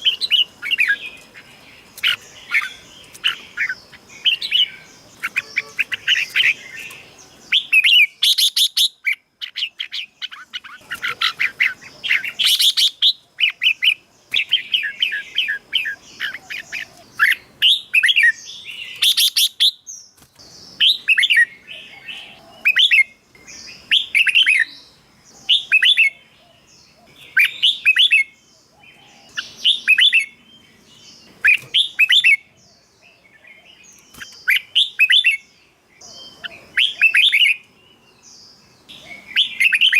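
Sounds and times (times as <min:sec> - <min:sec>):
bird singing whistled phrases: 0:27.3 - 0:28.4, 0:31.5 - 0:32.5, 0:34.4 - 0:35.5.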